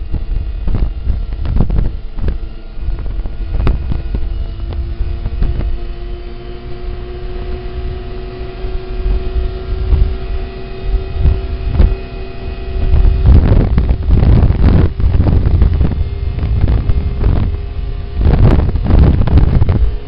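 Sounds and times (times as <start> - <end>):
snowmobile engine running: 0.0 - 20.0
wind buffeting on microphone: 0.0 - 20.0.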